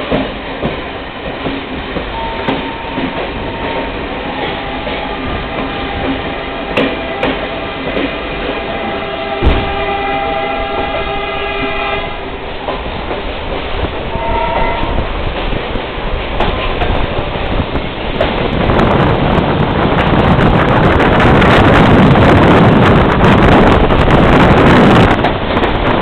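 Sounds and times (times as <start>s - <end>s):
moving train rumble and clatter: 0.0s - 26.0s
train horn blasts: 2.2s - 12.4s, 14.1s - 15.1s.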